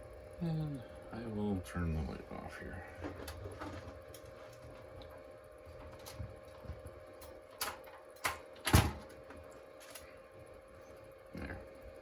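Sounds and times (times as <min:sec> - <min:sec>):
humidifier humming: 0:00.0 - 0:12.0.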